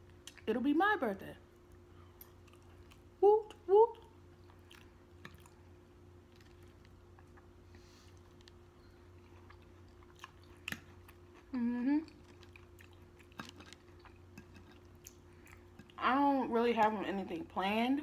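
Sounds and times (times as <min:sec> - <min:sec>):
chewing crunchy vegetables: 0:01.5 - 0:16.1
person humming: 0:11.5 - 0:12.1.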